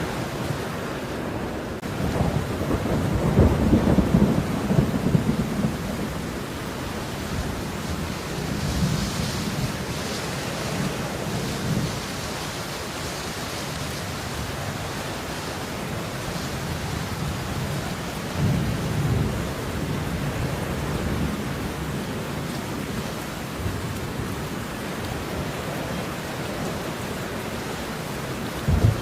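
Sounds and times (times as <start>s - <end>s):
steady rain hiss: 0.0s - 29.0s.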